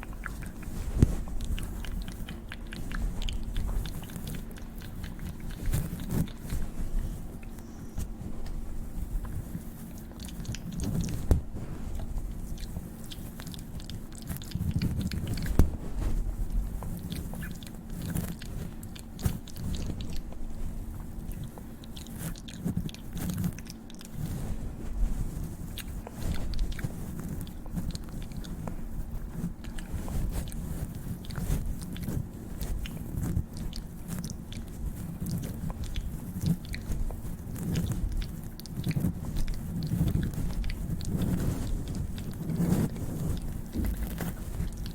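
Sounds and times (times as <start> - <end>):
wet mouth clicks: 0.0 - 8.6, 16.6 - 20.5.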